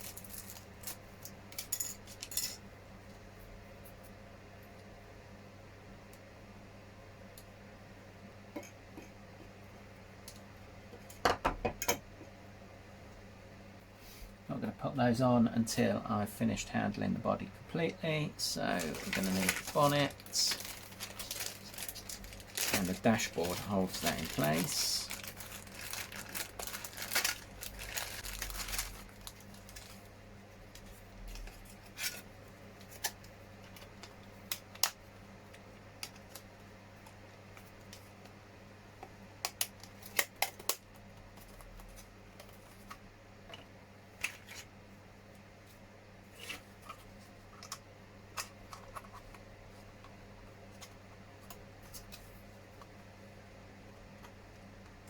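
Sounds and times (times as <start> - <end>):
low steady hum: 0.0 - 55.0
plastic parts rustling: 18.4 - 30.0.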